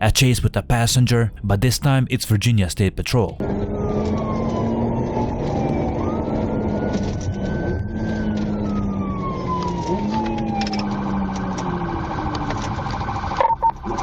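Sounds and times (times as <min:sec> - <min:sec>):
vehicle engine and road noise: 0:03.4 - 0:13.0
police siren wailing and yelping: 0:03.4 - 0:14.0.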